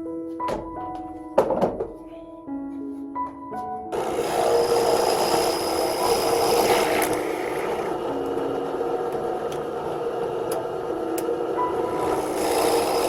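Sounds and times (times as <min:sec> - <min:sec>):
faint music: 0:00.0 - 0:04.6
tool scraping wood: 0:04.0 - 0:08.0, 0:12.0 - 0:13.0.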